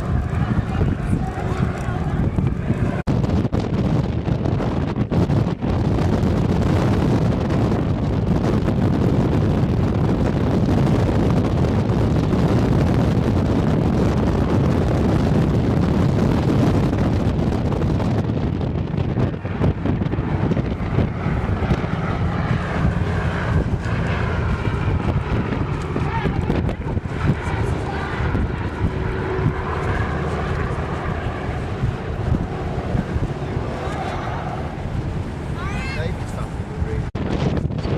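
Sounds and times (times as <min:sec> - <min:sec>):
aircraft in flight: 0:00.0 - 0:37.9
wind buffeting microphone: 0:00.0 - 0:37.9.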